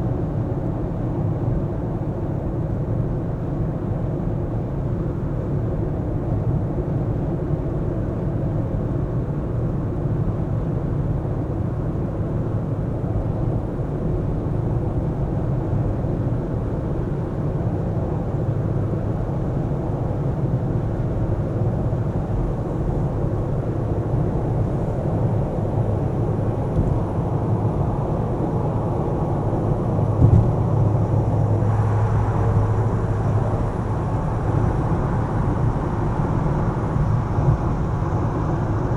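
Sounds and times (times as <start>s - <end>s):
car road and engine rumble: 12.3s - 38.9s
low hum: 25.9s - 38.9s
thump: 30.2s - 30.8s.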